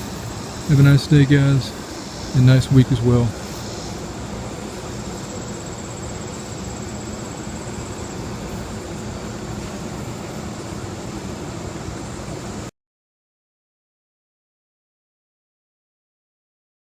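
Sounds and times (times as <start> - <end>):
steady rushing noise: 0.0 - 12.7.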